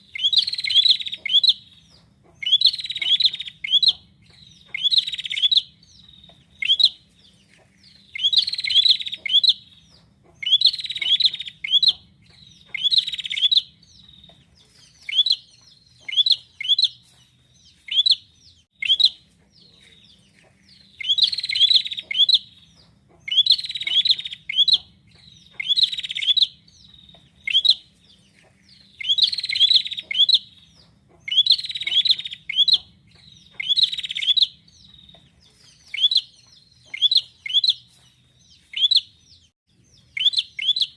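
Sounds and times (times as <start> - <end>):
bird rapid chirping bursts: 0.0 - 7.1, 7.9 - 17.1, 17.8 - 19.2, 20.8 - 28.0, 28.7 - 38.0, 38.6 - 39.2, 40.0 - 40.9.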